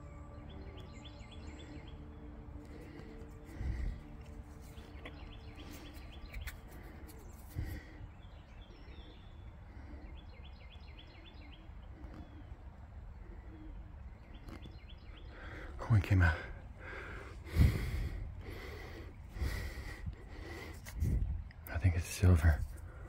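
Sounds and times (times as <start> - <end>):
outdoor background noise: 0.0 - 23.0
songbird chirping: 0.0 - 23.0.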